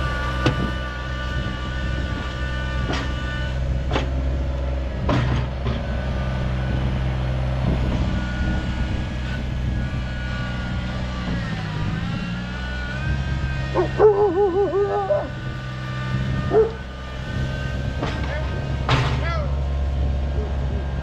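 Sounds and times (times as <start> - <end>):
tractor diesel engine running: 0.0 - 21.0
rising and falling whine: 6.0 - 18.8
dog barking loudly: 13.7 - 15.5, 16.4 - 16.9.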